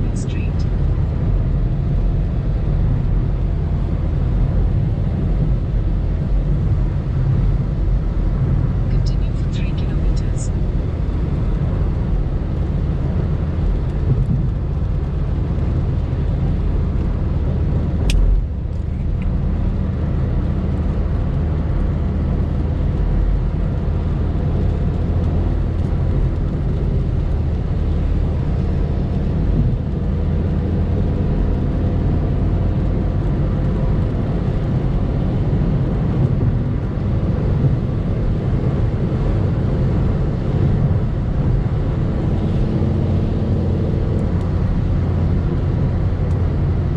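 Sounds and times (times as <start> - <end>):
car engine running: 0.0 - 46.9
sharp click: 18.0 - 18.4.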